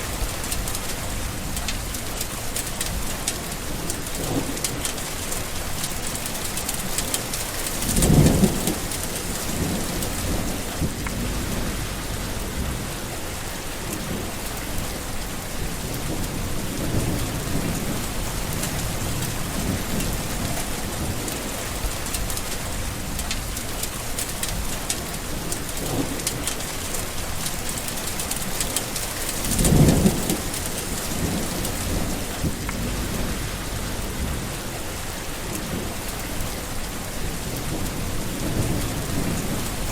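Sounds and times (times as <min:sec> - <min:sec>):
steady rain: 0:00.0 - 0:39.9
thunder rolling: 0:07.7 - 0:22.1, 0:29.4 - 0:39.9.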